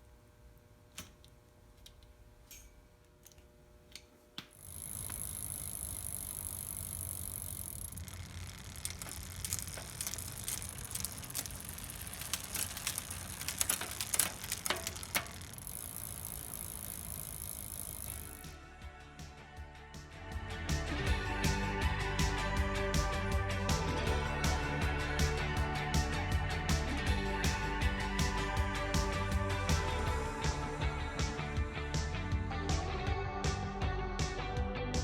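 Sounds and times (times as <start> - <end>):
bicycle clicking and rattling: 4.5 - 18.6
bicycle wheels whirring: 4.5 - 18.7
freewheel buzz: 4.5 - 18.8.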